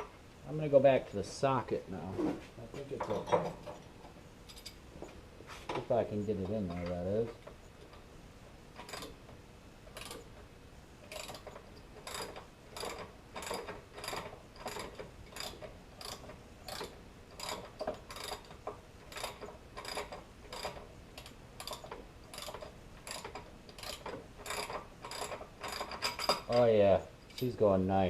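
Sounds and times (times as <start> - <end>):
socket ratchet clicking: 10.0 - 10.3.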